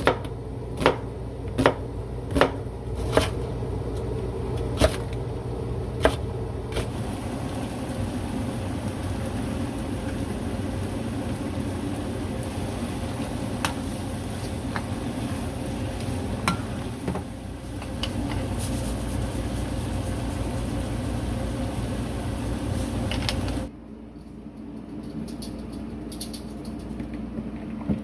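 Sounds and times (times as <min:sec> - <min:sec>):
cooking hiss: 0:04.4 - 0:23.7.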